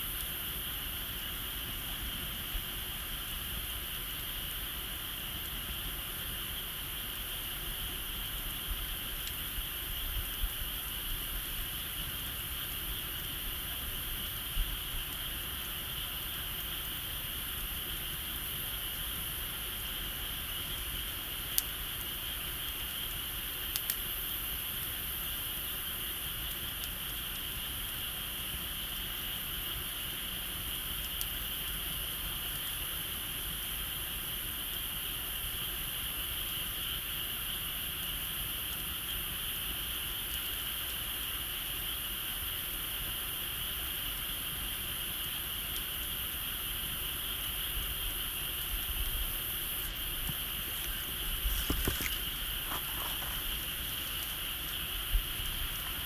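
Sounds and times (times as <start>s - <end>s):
insects chorus: 0.0s - 56.0s
wood fire popping: 11.7s - 29.3s, 47.2s - 56.0s.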